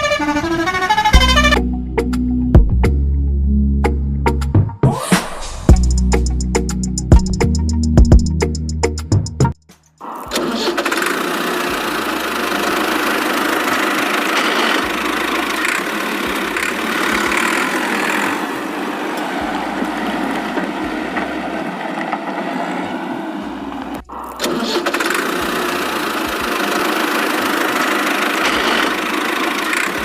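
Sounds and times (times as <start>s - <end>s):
vehicle engine running: 0.0s - 3.1s, 10.0s - 30.0s.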